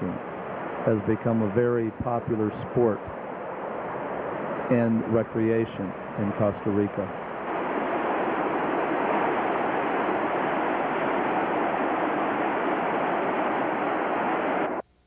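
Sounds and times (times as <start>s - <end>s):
river water rushing through rapids: 7.2s - 14.8s.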